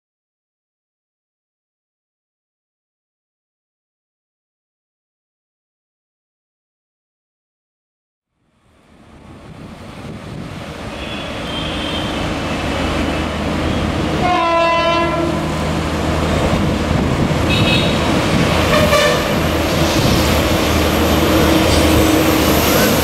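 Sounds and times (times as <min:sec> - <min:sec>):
electric locomotive approaching: 0:08.4 - 0:23.0
train horn: 0:10.9 - 0:12.3, 0:14.2 - 0:15.6, 0:17.5 - 0:19.4.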